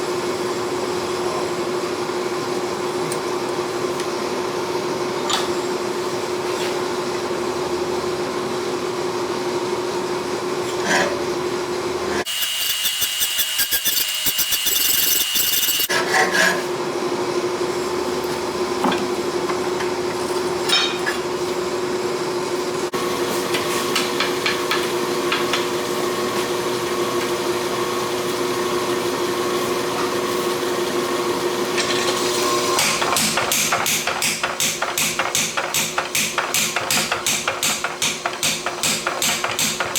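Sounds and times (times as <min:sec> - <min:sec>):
steady machine hum: 0:12.0 - 0:15.9.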